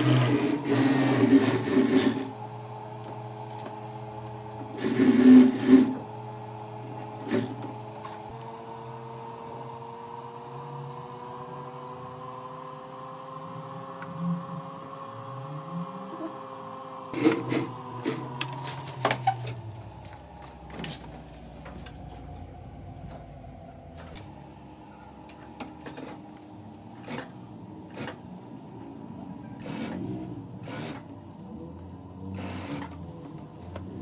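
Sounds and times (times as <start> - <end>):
sewing machine stitching: 0.0 - 2.4, 4.6 - 6.1, 17.2 - 18.4, 29.5 - 31.1, 32.3 - 33.2
motor hum: 0.0 - 34.0.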